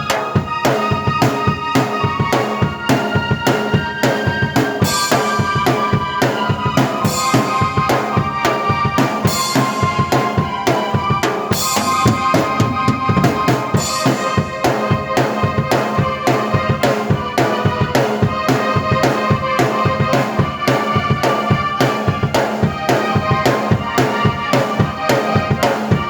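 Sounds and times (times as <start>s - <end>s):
keyboard chords: 0.0s - 24.4s
drum kit beat: 0.0s - 26.0s
held synth tones: 6.7s - 15.0s.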